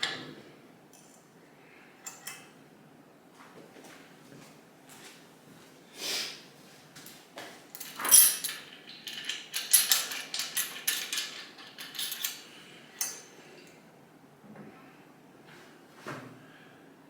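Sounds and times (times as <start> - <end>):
metal tools clinking and rattling: 7.8 - 13.3.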